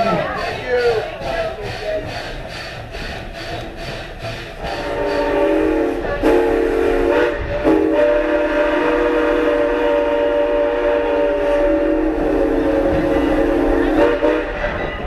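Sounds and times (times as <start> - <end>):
steam whistle chord: 4.6 - 14.6.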